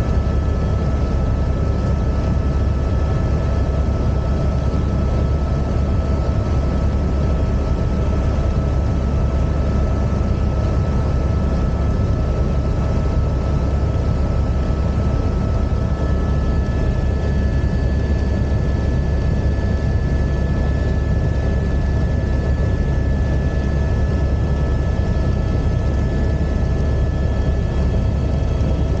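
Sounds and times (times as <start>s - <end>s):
helicopter engine and rotor drone: 0.0s - 29.0s.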